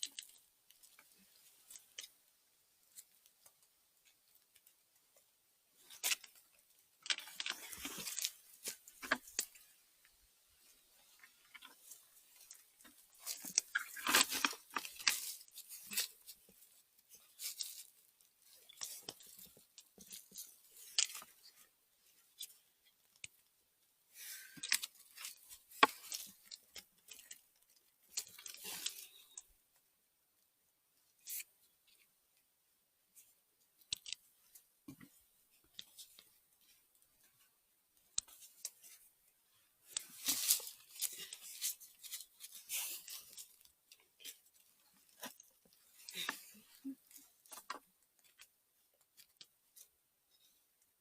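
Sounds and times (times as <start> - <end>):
rustling in dry forest litter: 39.9 - 43.6.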